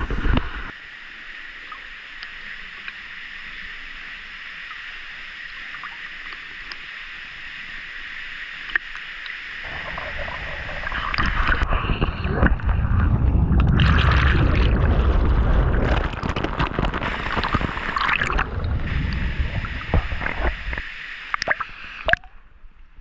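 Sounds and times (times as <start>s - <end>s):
water splashing and gurgling: 0.0s - 0.7s, 8.6s - 22.4s
rushing water hiss: 0.0s - 22.2s.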